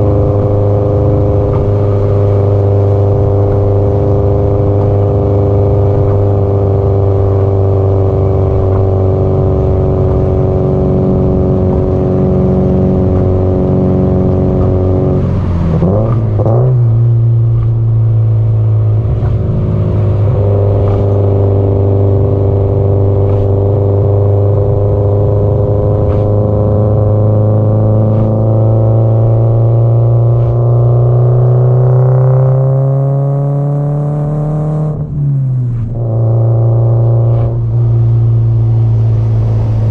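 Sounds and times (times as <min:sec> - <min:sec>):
gear change: 0:00.0 - 0:31.0
car engine under way: 0:00.0 - 0:39.9.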